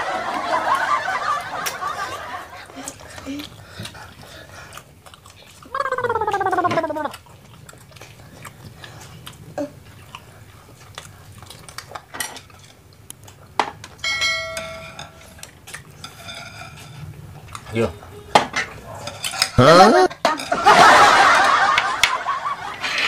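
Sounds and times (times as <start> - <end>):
chewing: 2.6 - 14.0, 15.2 - 18.1.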